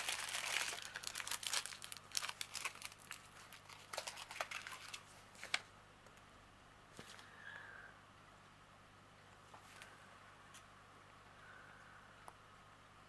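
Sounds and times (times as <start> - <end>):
plastic bags crinkling: 0.0 - 5.6.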